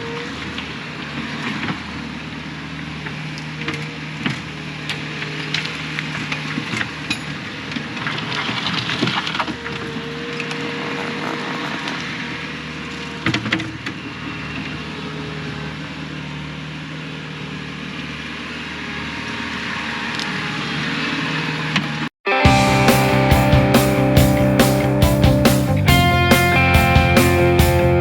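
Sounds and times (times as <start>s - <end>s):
digger diesel engine running: 22.5s - 28.0s.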